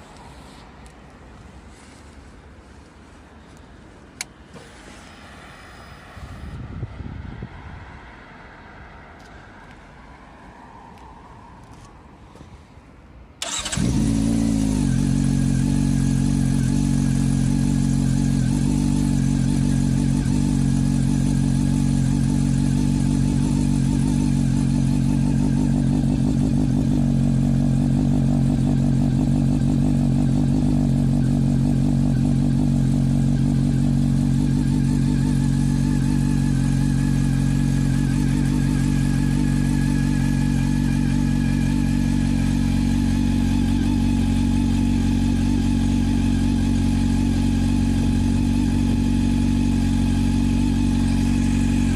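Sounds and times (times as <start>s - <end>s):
motorcycle engine starting and idling: 13.4s - 51.9s.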